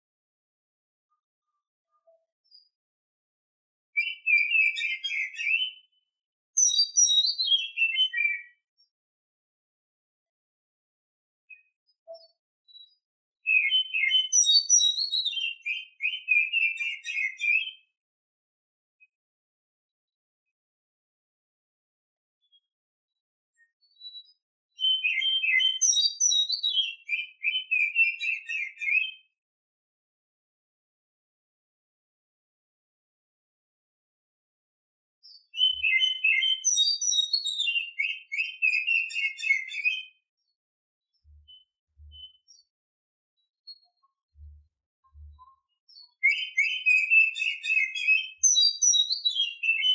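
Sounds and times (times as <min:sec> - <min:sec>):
bird singing whistles and chirps: 0:04.0 - 0:06.0, 0:06.6 - 0:08.6, 0:11.5 - 0:17.9, 0:23.6 - 0:29.4, 0:35.2 - 0:40.5, 0:41.1 - 0:42.7, 0:43.7 - 0:49.9.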